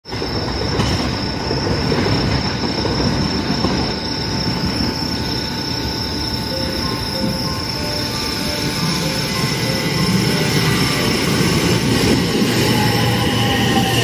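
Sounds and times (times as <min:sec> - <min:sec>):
train wheels rumbling on rails: 0:00.0 - 0:14.0
high-pitched tone: 0:04.2 - 0:14.0.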